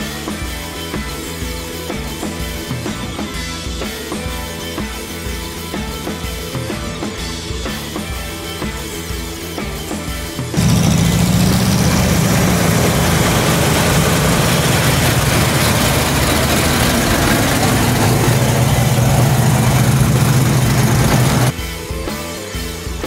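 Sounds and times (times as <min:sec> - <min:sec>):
car engine running at low revs: 0:10.6 - 0:21.5.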